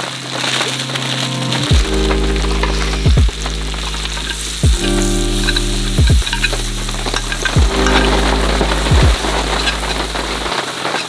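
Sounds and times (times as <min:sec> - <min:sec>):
mushrooms sizzling in frying pan: 0:03.4 - 0:10.4
metal tongs stirring in pan: 0:04.1 - 0:11.0.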